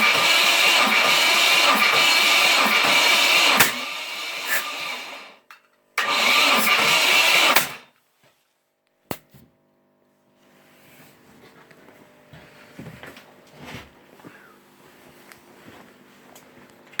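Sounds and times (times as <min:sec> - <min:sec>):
starter motor cranking engine: 0:00.0 - 0:05.4, 0:06.0 - 0:07.9.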